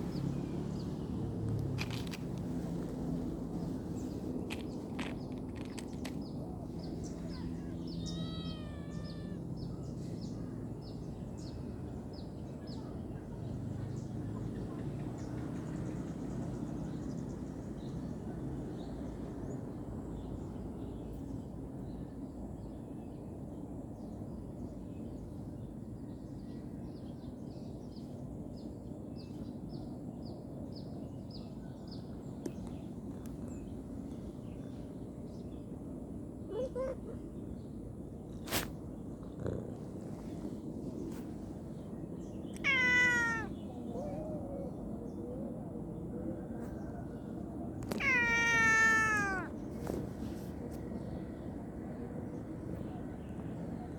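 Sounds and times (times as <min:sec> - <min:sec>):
steady low rumble: 0:00.0 - 0:08.1
pitched animal calls: 0:42.6 - 0:44.2, 0:48.0 - 0:49.5.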